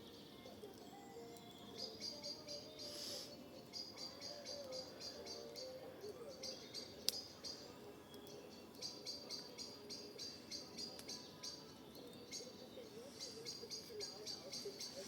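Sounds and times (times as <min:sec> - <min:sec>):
bird chirping: 0:00.0 - 0:15.0
wood fire crackling: 0:05.4 - 0:15.0
fire popping: 0:06.8 - 0:09.5.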